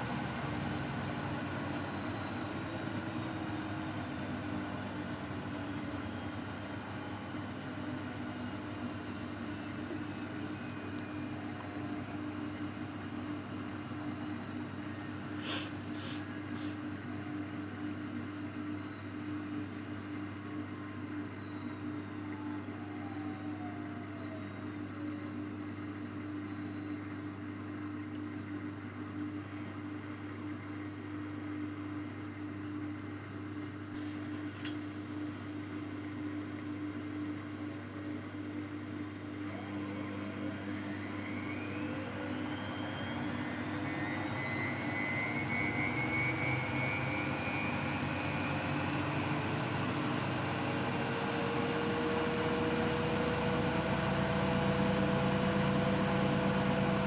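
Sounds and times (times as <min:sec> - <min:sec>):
motor whine rising in pitch: 0:00.0 - 0:25.1, 0:38.8 - 0:57.0
washing machine motor hum: 0:00.0 - 0:57.0.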